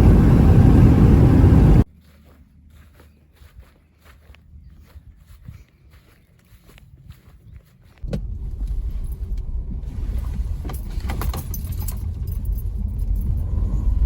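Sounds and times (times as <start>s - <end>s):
car engine and road rumble: 0.0s - 3.2s, 8.0s - 14.0s
light clicks and rattles: 10.6s - 13.7s.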